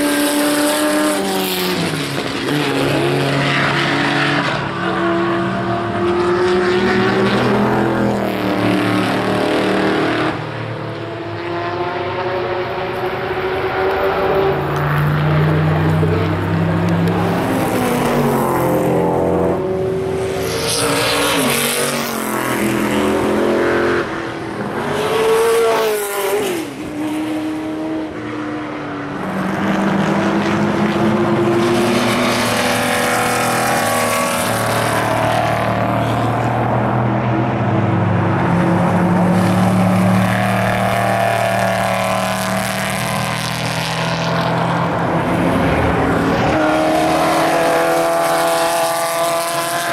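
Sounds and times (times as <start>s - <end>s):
race cars racing past: 0.0s - 49.9s.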